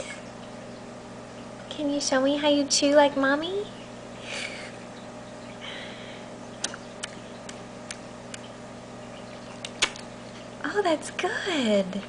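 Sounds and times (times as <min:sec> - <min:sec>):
baby mouth clicks and smacks: 0:06.6 - 0:08.4.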